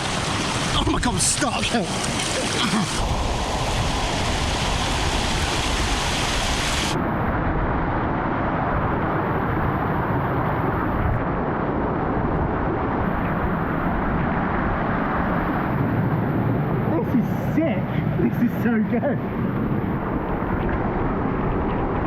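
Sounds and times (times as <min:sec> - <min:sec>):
rushing stream water: 0:00.0 - 0:07.0
vehicle road and engine noise: 0:06.9 - 0:22.0.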